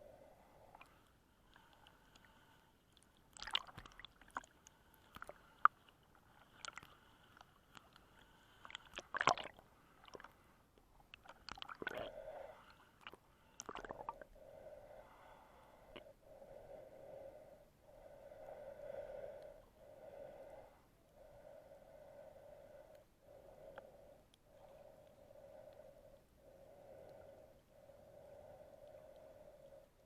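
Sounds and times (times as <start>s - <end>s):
underwater clicks and crackles: 0.7s - 12.1s, 12.7s - 14.2s
water gurgling: 8.9s - 10.3s, 11.2s - 12.2s, 13.6s - 14.2s.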